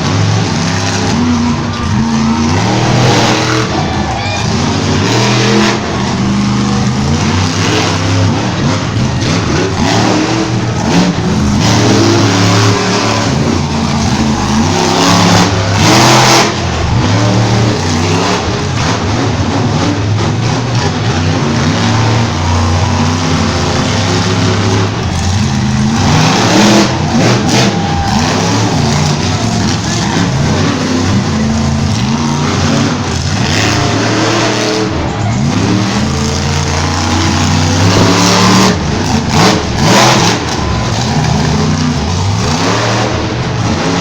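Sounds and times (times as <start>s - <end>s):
truck engine revving hard: 0.0s - 44.0s.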